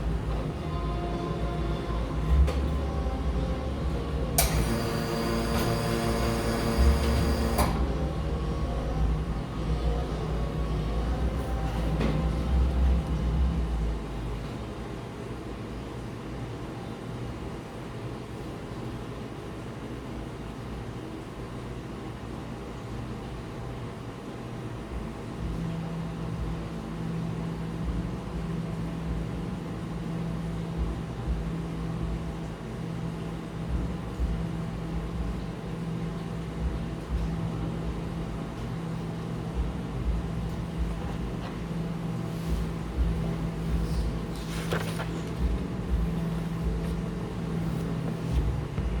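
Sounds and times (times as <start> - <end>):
low mechanical hum: 0.0 - 49.0.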